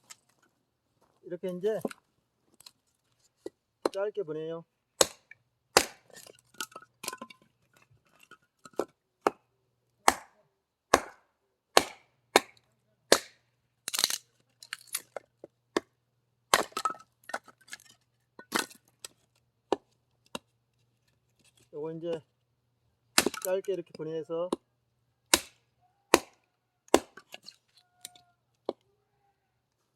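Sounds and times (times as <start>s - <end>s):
axe chopping wood: 5.0s - 6.3s, 8.7s - 9.4s, 10.0s - 14.2s, 16.5s - 17.5s, 23.2s - 23.5s, 25.3s - 27.4s.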